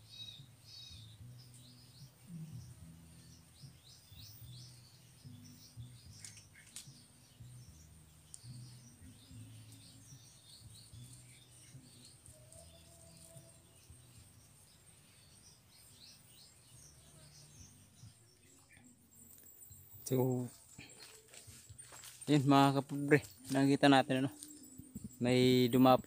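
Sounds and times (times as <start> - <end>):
faint bird chirping: 0.0 - 26.0.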